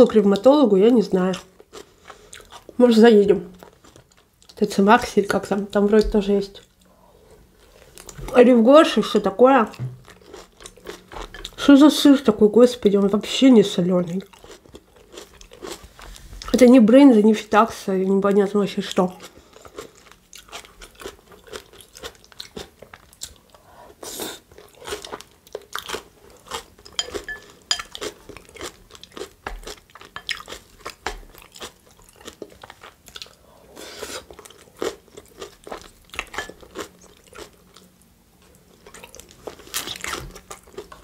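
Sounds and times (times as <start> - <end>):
crisp salad chewing crunches: 9.8 - 11.6, 14.1 - 16.6, 19.1 - 23.5, 24.4 - 33.4, 34.2 - 41.0.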